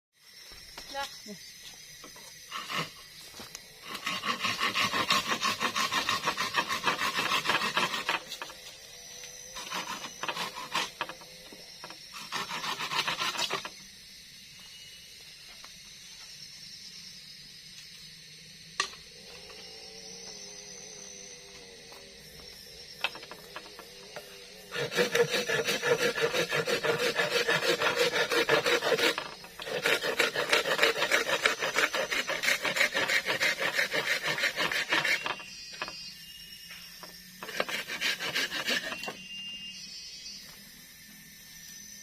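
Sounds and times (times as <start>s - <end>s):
rhythmic scraping strokes: 2.5s - 8.8s, 9.6s - 11.3s, 12.1s - 13.8s, 24.5s - 36.0s, 37.1s - 39.2s.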